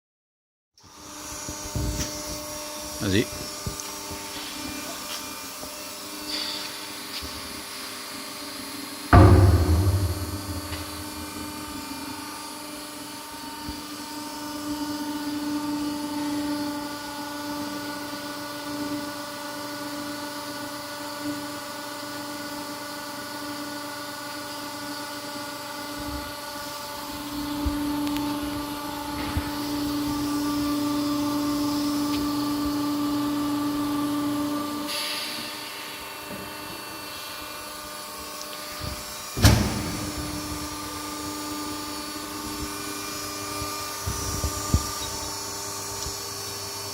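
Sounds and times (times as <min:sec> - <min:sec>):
sharp bang: 0:09.2 - 0:12.1.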